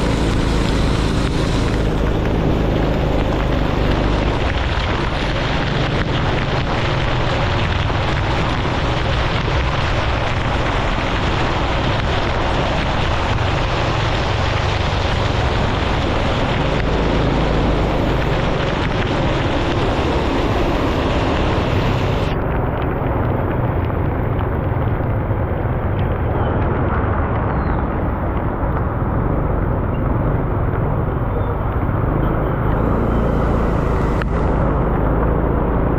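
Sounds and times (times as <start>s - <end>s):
motorbike engine: 0.0s - 22.4s, 30.2s - 35.9s
wind rushing over microphone: 0.0s - 35.9s.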